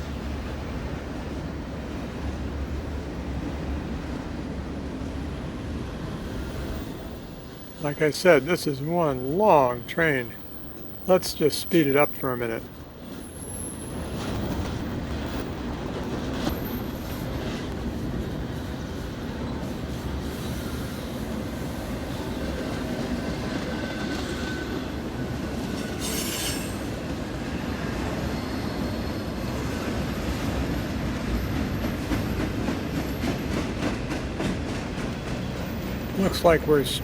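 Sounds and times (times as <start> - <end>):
train wheels rumbling on rail: 0.0 - 37.0
faint wheel squeal: 25.8 - 26.9.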